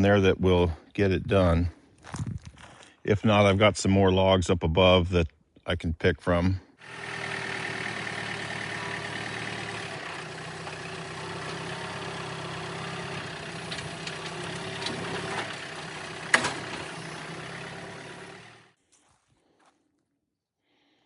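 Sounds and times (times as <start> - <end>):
engine idling: 6.8 - 18.8.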